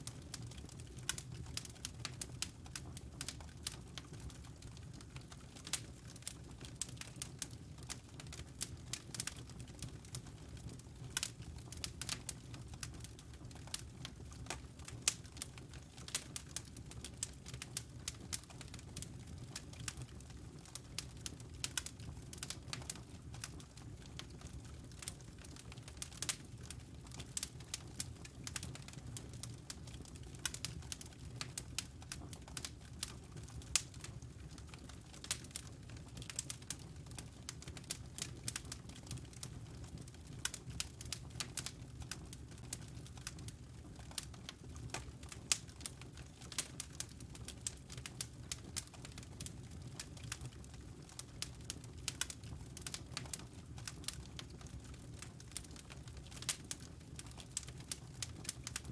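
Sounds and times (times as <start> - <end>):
wood fire crackling and popping: 0.0 - 58.9.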